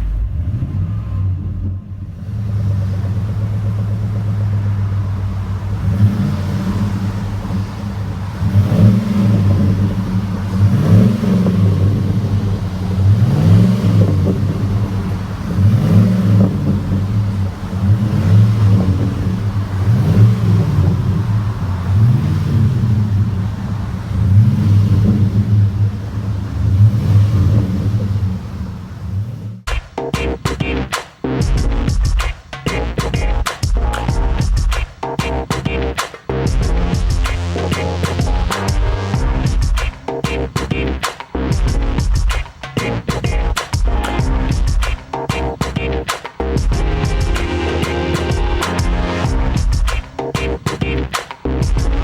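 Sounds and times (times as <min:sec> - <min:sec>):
engine idling and revving: 0:00.0 - 0:52.0.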